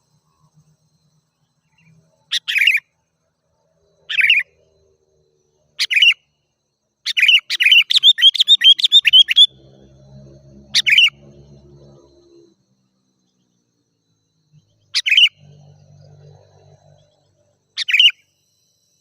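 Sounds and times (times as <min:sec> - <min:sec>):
bulbul singing: 0:01.4 - 0:03.0, 0:04.0 - 0:04.8, 0:05.6 - 0:06.3, 0:07.0 - 0:09.7, 0:10.6 - 0:11.6, 0:14.6 - 0:17.1, 0:17.8 - 0:18.3.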